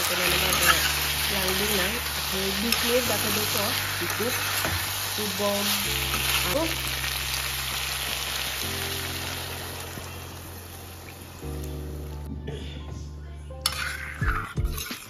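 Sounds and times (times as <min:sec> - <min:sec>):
eel sizzling in pan: 0:00.0 - 0:12.1
metal spoon stirring: 0:00.1 - 0:01.3, 0:13.7 - 0:15.0.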